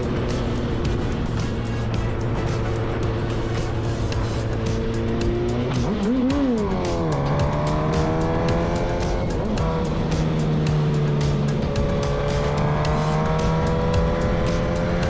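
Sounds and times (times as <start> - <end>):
background music with steady beat: 0.0 - 15.0
vehicle engine running: 0.0 - 15.0.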